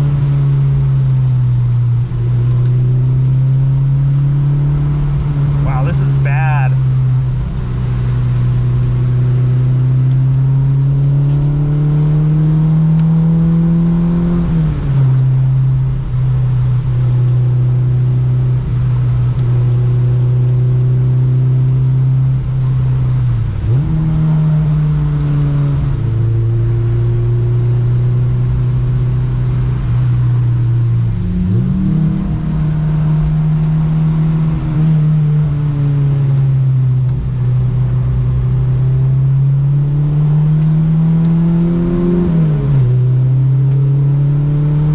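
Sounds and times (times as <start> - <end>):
car engine under load: 0.0 - 44.9
steady rushing noise: 5.6 - 6.8.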